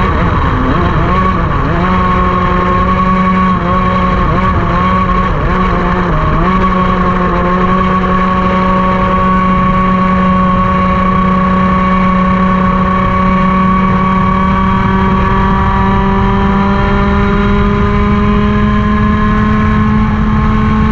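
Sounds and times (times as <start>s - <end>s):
kart engine at high revs: 0.0s - 20.9s.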